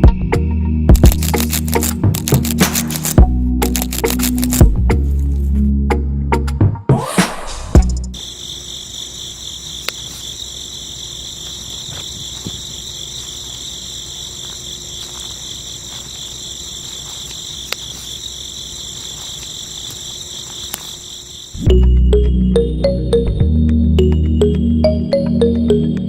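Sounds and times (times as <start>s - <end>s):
crickets chirring: 0.9s - 5.4s, 7.8s - 23.3s.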